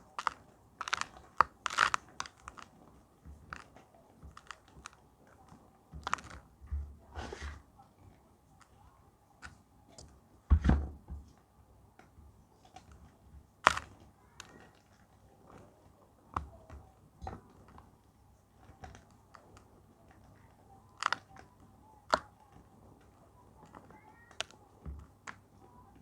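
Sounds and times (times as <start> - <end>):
chalk being crushed: 0.2 - 2.7, 13.6 - 14.5.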